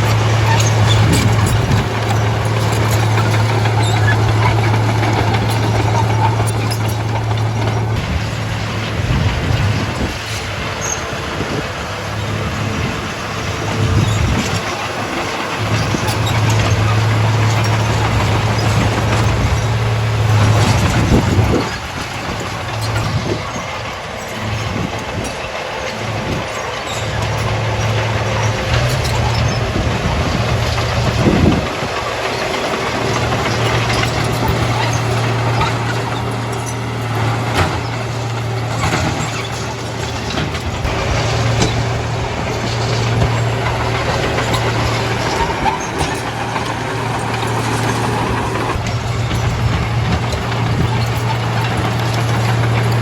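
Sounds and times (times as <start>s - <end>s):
clanks and rattles: 0.0s - 53.0s
heavy diesel machinery running: 0.0s - 53.0s.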